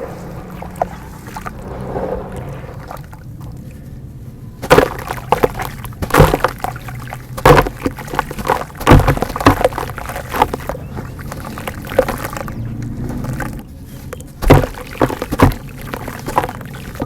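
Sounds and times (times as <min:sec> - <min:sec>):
dirt splashing into water: 0:00.0 - 0:03.8, 0:04.6 - 0:17.0
crumbling dirt crackling: 0:00.0 - 0:17.0.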